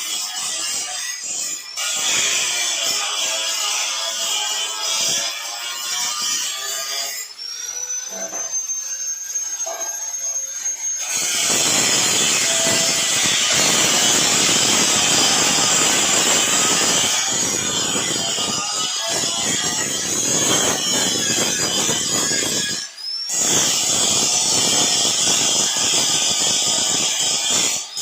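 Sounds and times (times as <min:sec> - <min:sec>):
harsh cutting noise: 0:00.0 - 0:22.5
power tool motor whine: 0:01.2 - 0:28.0.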